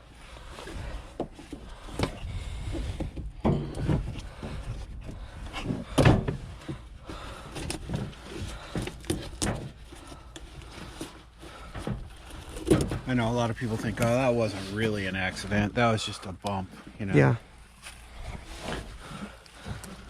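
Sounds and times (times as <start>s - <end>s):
parts and tools clattering: 3.4s - 4.6s.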